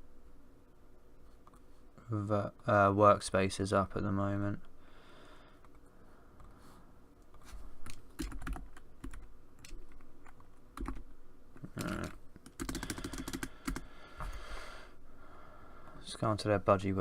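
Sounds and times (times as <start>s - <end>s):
keyboard typing clicks: 7.8s - 11.0s, 11.6s - 13.9s.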